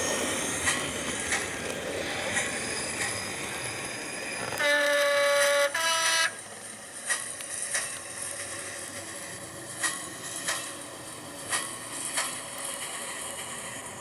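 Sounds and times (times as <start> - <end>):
model locomotive running sound: 0.0 - 14.0
model locomotive horn: 4.5 - 6.4.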